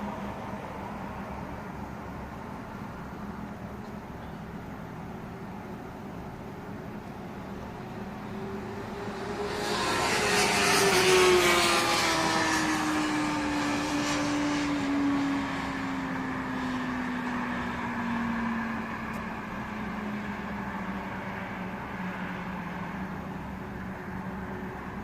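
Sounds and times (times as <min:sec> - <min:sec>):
passing engine drone: 0:07.1 - 0:25.0.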